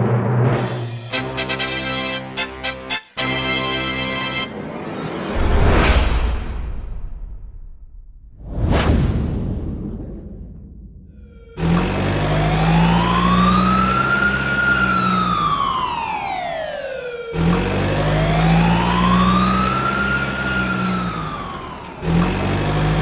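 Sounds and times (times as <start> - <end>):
engine hum: 10.2 - 23.0
wailing siren: 11.2 - 23.0.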